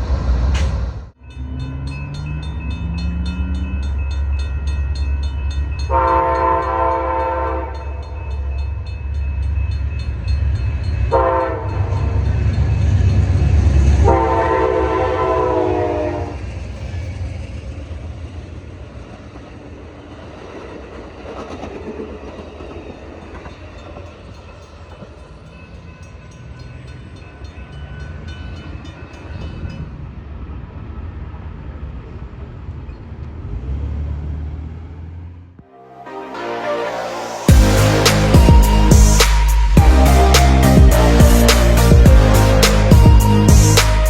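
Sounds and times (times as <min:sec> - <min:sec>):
train cars rolling and rattling: 0:00.0 - 0:34.0
train horn chime: 0:01.2 - 0:08.6, 0:10.9 - 0:16.5, 0:35.6 - 0:44.0
locomotive engine rumble: 0:37.5 - 0:44.0.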